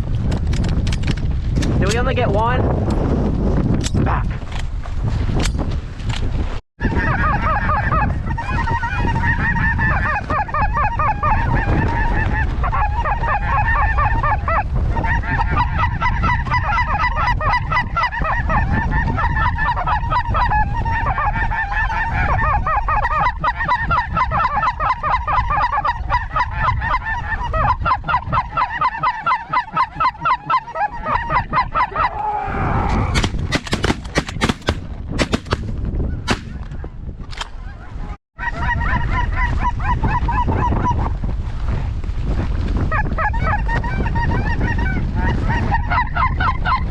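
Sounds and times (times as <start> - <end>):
geese honking: 6.8 - 32.4, 37.6 - 41.0
sharp cracks: 33.1 - 35.7.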